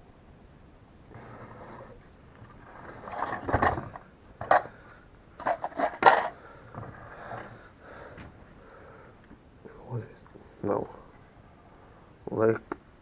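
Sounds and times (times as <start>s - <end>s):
metal parts clattering and rustling: 2.6s - 4.7s, 5.4s - 6.4s.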